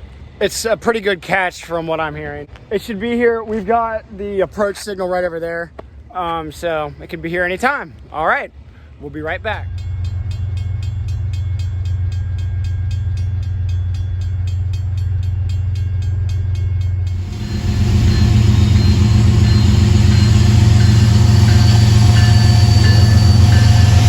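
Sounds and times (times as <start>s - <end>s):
diesel locomotive engine rumble: 0.0s - 24.0s
freight train rolling by: 0.0s - 24.0s
faint squealing tones: 17.4s - 24.0s.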